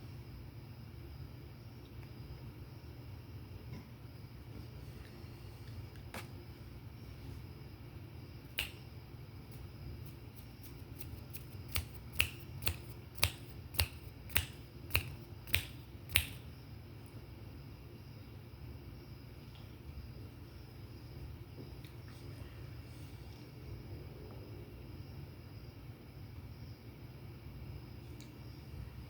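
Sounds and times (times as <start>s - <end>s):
sharp clicks: 11.0s - 16.4s.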